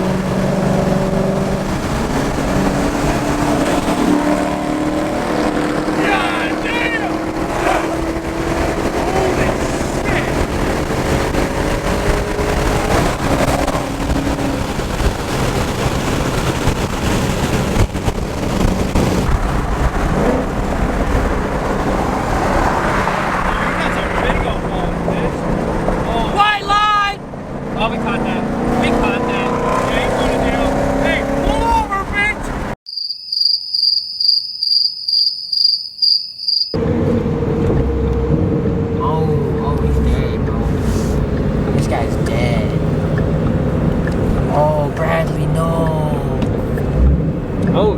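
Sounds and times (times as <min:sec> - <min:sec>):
car engine and road noise: 0:00.0 - 0:32.9, 0:35.1 - 0:47.9
cricket chirping: 0:32.9 - 0:36.8.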